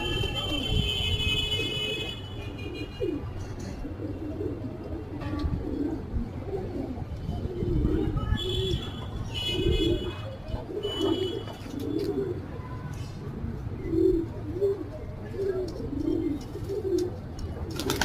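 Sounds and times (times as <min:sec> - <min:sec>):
pigeons cooing: 0:01.5 - 0:18.0.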